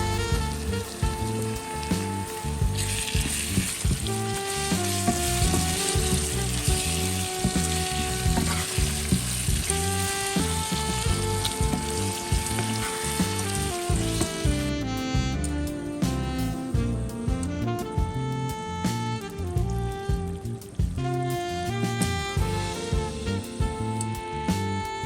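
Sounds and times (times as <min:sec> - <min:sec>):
background music: 0:00.0 - 0:25.0
food sizzling in a hot pan: 0:02.8 - 0:10.6.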